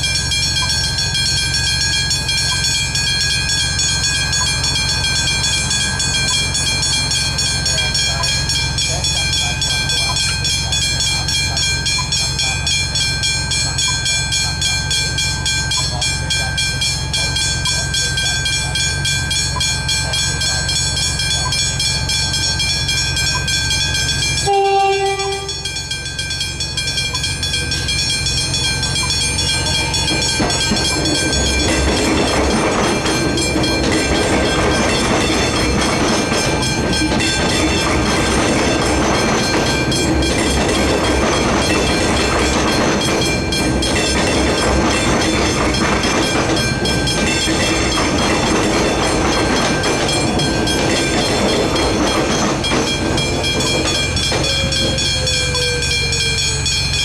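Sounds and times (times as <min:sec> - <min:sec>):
level crossing warning bells: 0:00.0 - 0:57.0
train wheels clattering on rails: 0:00.0 - 0:57.0
train horn blast: 0:24.4 - 0:25.7.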